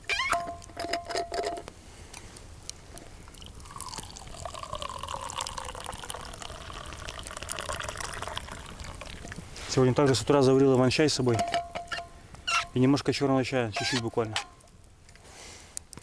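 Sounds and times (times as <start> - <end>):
thermos squeak: 0.0 - 0.7, 11.4 - 12.8, 13.7 - 14.7
tea pouring into a cup: 3.3 - 10.2
thermos lid clicks and knocks: 11.4 - 12.1.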